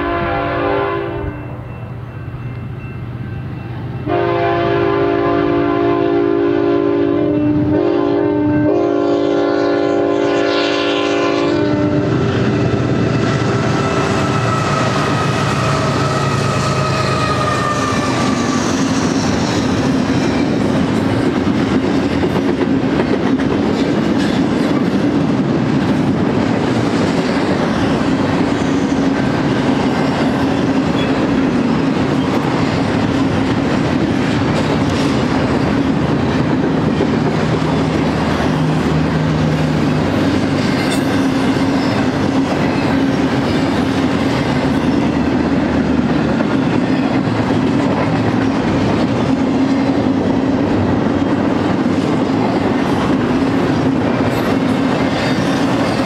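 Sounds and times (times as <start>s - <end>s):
train horn: 0.0s - 1.8s, 4.0s - 19.6s
wheels clattering on rails: 12.6s - 56.0s.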